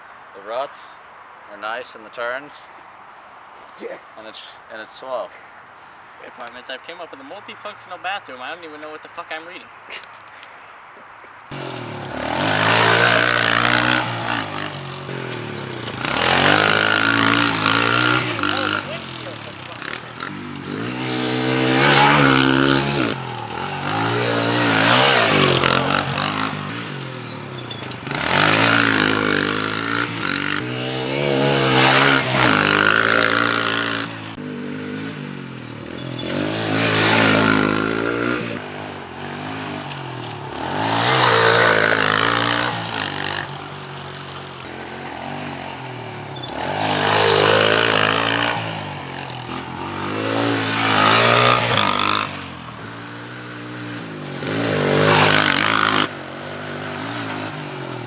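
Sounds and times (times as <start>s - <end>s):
motorbike engine revving: 11.5s - 58.0s.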